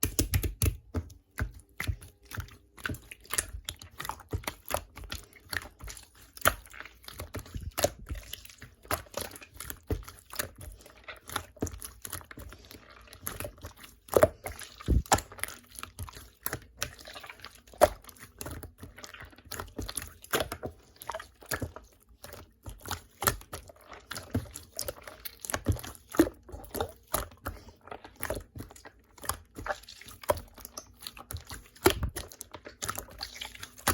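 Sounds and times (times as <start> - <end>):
slime squishing with wet clicks: 0.0 - 33.9.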